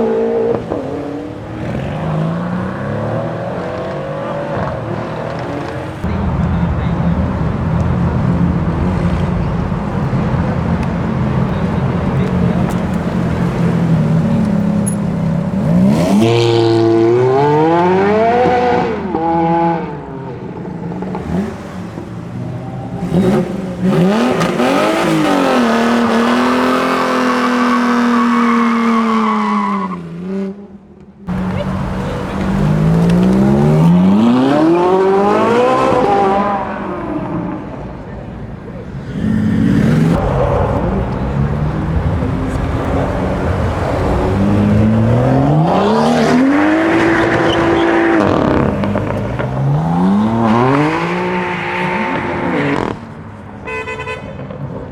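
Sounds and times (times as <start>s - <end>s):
car engines accelerating hard: 0.0s - 53.7s
low engine drone: 6.0s - 15.9s, 36.7s - 46.1s.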